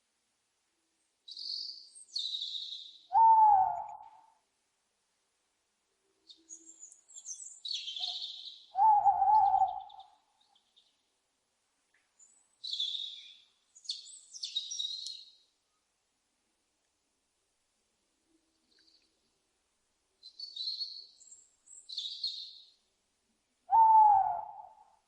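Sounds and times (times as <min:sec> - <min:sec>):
owl wavering call: 0:03.1 - 0:04.4, 0:07.8 - 0:10.2, 0:23.7 - 0:25.0
owl screeching: 0:08.8 - 0:09.9, 0:23.7 - 0:24.8.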